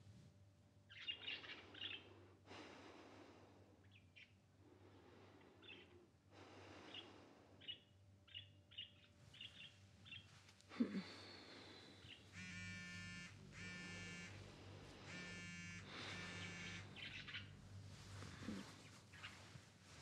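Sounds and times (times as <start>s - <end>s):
faint bird chirps: 0.9s - 2.2s, 3.8s - 4.4s, 5.3s - 6.1s, 6.8s - 19.5s
pulsing trill with low buzz: 12.1s - 18.6s.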